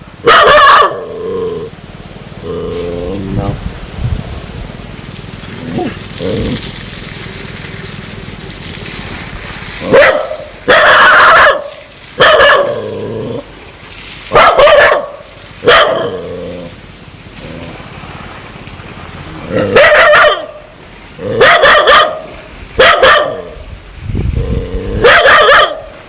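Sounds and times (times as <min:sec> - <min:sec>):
dog barking: 0:00.2 - 0:01.1, 0:09.8 - 0:12.9, 0:14.3 - 0:16.2, 0:19.5 - 0:23.6, 0:25.0 - 0:26.0.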